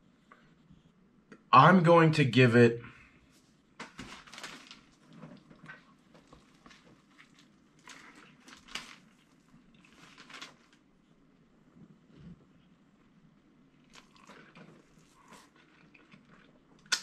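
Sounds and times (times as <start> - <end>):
person biting and chewing: 13.8 - 17.0.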